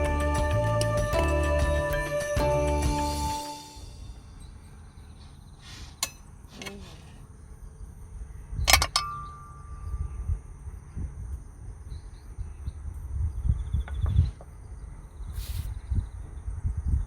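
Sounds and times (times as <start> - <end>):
wind rumble on microphone: 7.7 - 17.0
metallic clinks: 8.7 - 10.1.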